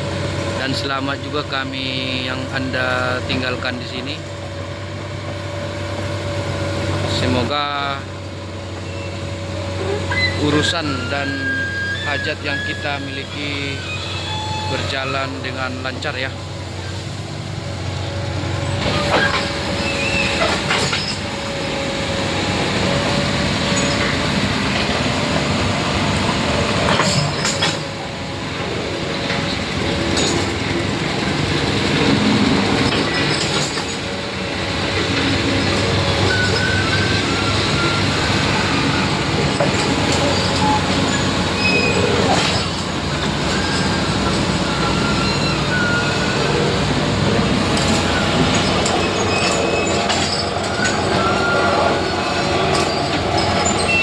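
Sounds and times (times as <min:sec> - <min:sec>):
heavy machinery running: 0:00.0 - 0:54.0
brief high squeals: 0:08.8 - 0:14.9, 0:18.9 - 0:21.2, 0:36.2 - 0:39.1, 0:40.2 - 0:42.7, 0:43.5 - 0:46.4, 0:49.0 - 0:54.0
metallic clanks: 0:26.7 - 0:28.0, 0:47.7 - 0:51.6.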